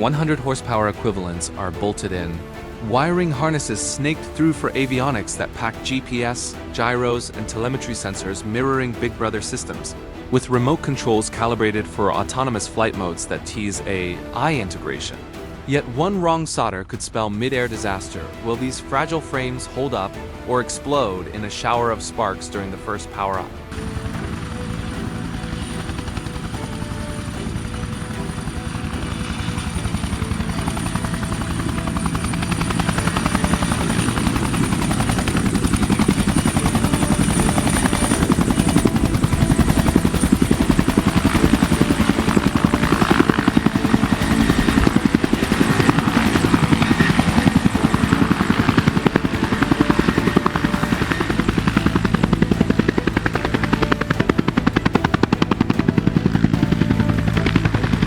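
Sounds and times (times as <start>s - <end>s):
helicopter rotor chop and whine: 0.0s - 58.0s.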